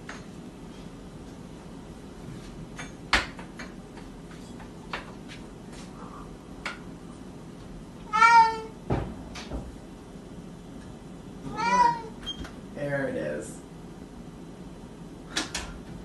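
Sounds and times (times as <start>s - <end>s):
cat meowing: 8.0s - 8.8s, 11.5s - 12.2s.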